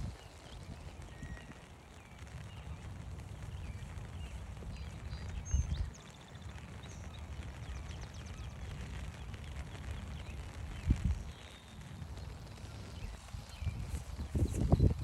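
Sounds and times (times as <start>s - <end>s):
songbirds chirping and trilling: 0.0s - 15.0s
footsteps on forest trail: 12.9s - 15.0s.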